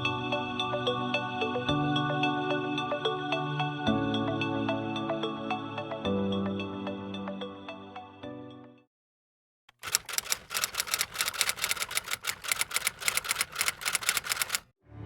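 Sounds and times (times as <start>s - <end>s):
rapid sharp clicks: 9.7s - 14.7s.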